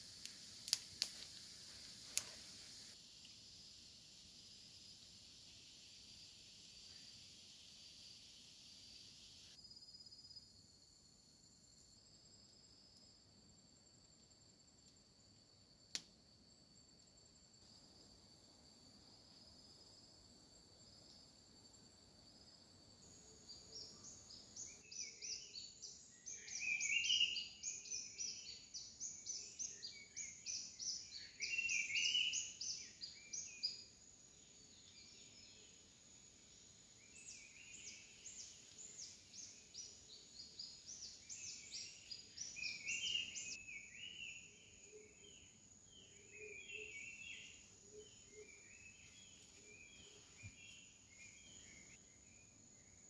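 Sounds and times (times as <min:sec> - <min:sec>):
high insect whine: 0:00.0 - 0:10.5, 0:26.3 - 0:53.0.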